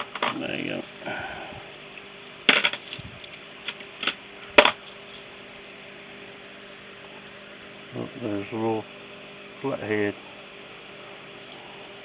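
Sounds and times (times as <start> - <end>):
small metal tools clinking: 0.0 - 1.1, 2.5 - 7.4.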